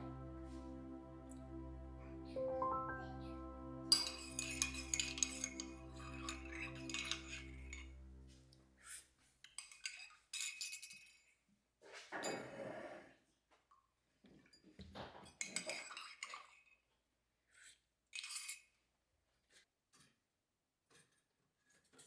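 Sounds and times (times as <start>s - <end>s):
soft background music: 0.0s - 8.5s.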